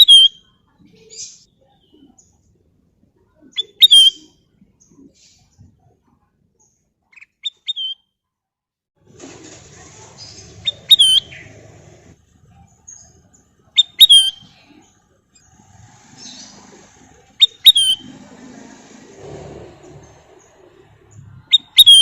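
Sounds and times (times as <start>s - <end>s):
bulbul whistled calls: 0.0s - 0.5s, 3.5s - 4.4s, 10.6s - 11.6s, 13.8s - 14.7s, 15.9s - 18.3s, 21.4s - 22.0s.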